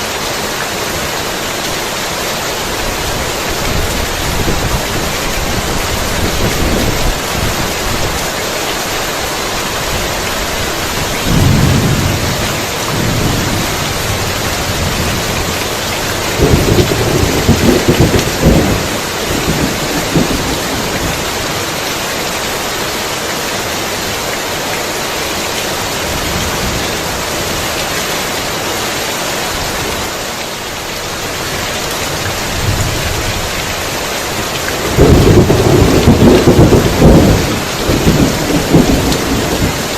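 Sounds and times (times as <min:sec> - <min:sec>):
heavy rain pouring: 0:00.0 - 0:39.9
thunder rumbling: 0:10.9 - 0:21.6, 0:34.8 - 0:39.9.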